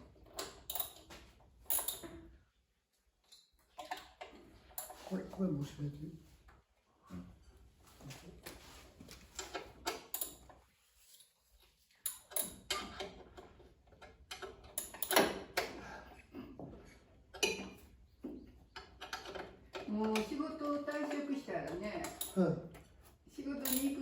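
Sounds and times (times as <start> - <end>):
hard objects clicking and knocking: 12.1 - 15.8, 16.7 - 22.9.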